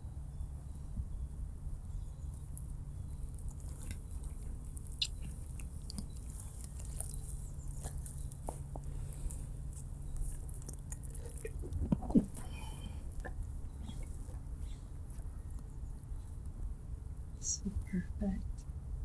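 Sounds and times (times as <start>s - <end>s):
steady low hum: 0.0s - 19.0s
animal chewing: 2.2s - 16.5s.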